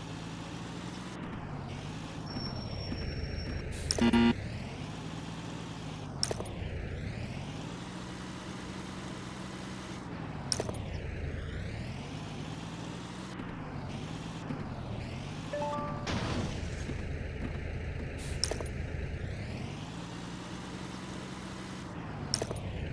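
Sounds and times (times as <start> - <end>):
sharp clicks: 3.8 - 4.2, 10.5 - 10.8, 18.3 - 18.8.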